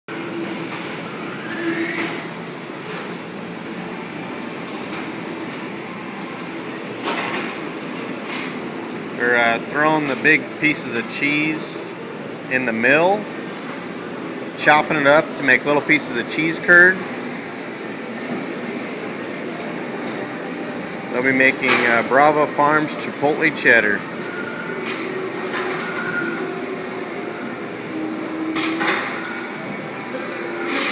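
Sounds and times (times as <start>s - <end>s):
high squeal: 3.6s - 4.4s, 24.2s - 24.9s.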